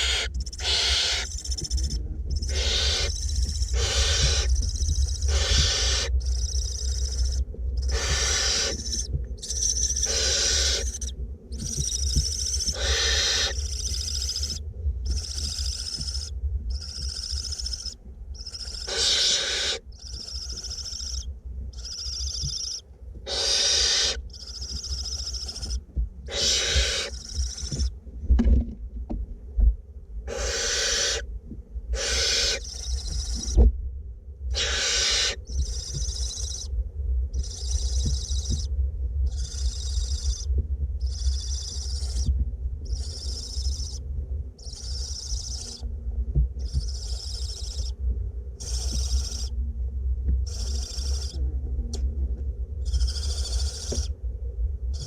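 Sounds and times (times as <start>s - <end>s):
owlets rasping begging hisses: 5.3s - 6.9s, 7.9s - 9.0s, 10.0s - 11.0s, 12.7s - 13.8s, 18.5s - 19.8s, 23.3s - 24.2s, 26.3s - 27.2s, 30.3s - 31.2s, 32.0s - 32.7s, 34.6s - 35.4s.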